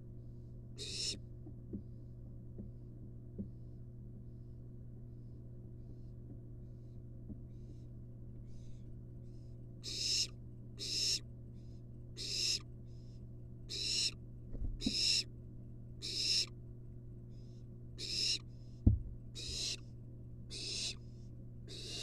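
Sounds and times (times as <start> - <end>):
low electrical hum: 0.0 - 22.0
owl nestling hissing: 0.8 - 1.2, 9.8 - 11.2, 12.2 - 12.6, 13.7 - 14.2, 14.8 - 15.3, 16.0 - 16.5, 17.4 - 18.4, 19.4 - 19.8, 20.5 - 21.1, 21.7 - 22.0.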